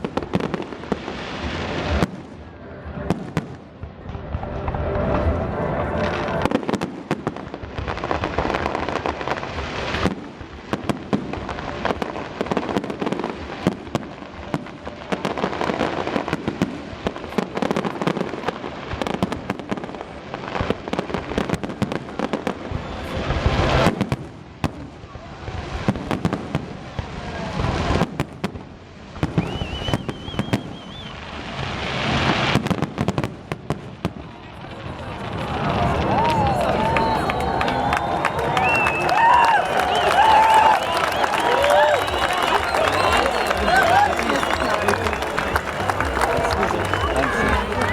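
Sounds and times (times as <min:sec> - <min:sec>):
fireworks bursting and crackling: 0:00.0 - 0:47.9
firework rising whistle: 0:29.3 - 0:31.4, 0:35.5 - 0:47.9.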